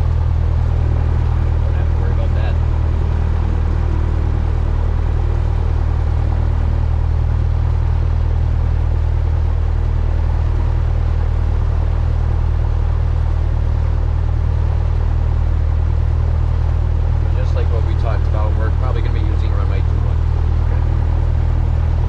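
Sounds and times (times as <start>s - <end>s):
aircraft engine and propeller drone: 0.0s - 22.0s.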